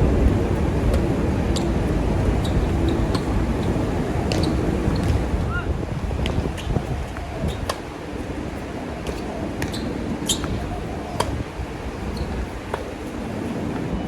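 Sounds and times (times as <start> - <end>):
wind buffeting microphone: 0.0 - 14.0
tennis ball bouncing: 2.5 - 5.2, 6.2 - 8.3, 9.0 - 11.4, 12.0 - 13.2.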